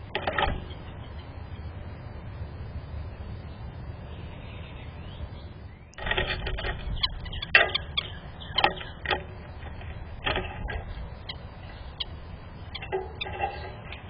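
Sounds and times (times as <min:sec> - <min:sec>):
bird tapping and clicking: 0:06.0 - 0:14.0.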